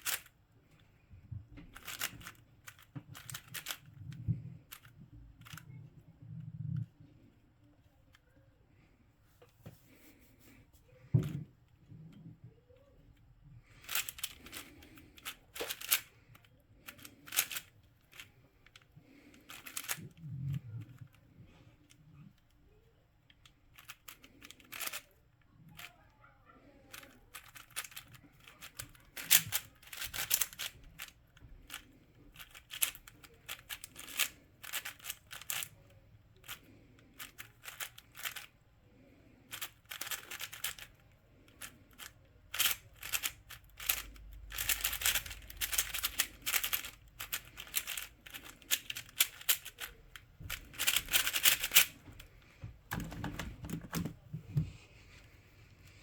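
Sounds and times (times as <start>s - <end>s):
puzzle cube clicking turns: 0.0s - 0.9s, 1.6s - 5.9s, 13.7s - 25.9s, 26.9s - 54.2s.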